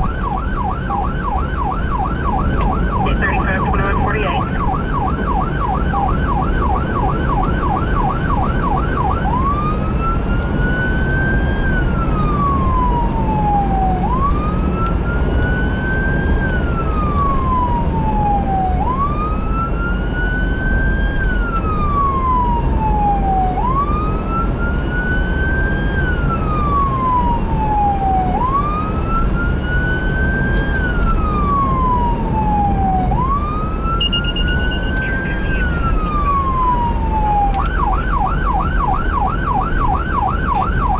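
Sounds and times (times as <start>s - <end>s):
electronic siren yelp and wail: 0.0s - 40.9s
low engine and road rumble: 0.0s - 40.9s
short beep: 34.0s - 35.7s.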